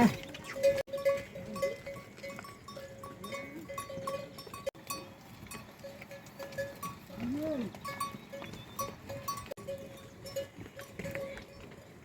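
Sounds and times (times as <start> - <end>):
livestock bells clinking: 0.0 - 12.0.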